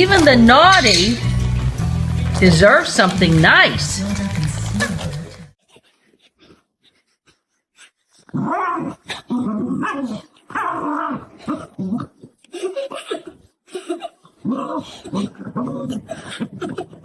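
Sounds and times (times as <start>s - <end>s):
dog growling: 7.8s - 13.4s, 14.3s - 17.0s.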